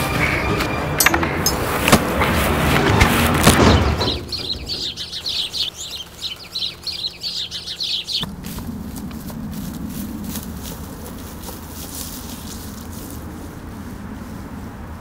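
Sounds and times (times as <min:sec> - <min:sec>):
sharp hits: 0:00.0 - 0:05.7
loud noisy background: 0:00.0 - 0:11.0
small birds chirping: 0:03.5 - 0:13.3.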